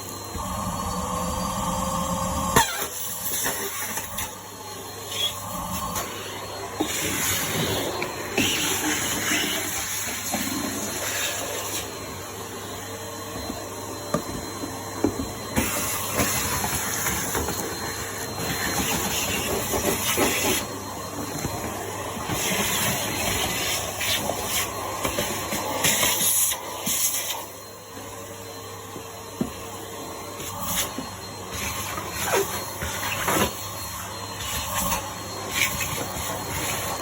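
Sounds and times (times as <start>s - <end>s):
vacuum cleaner running: 0.0s - 37.0s.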